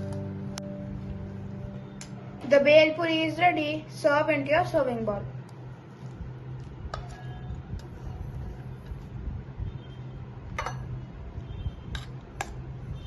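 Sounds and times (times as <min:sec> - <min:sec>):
steady low hum: 0:00.0 - 0:13.0
spoon clinking against bowl: 0:10.6 - 0:10.9.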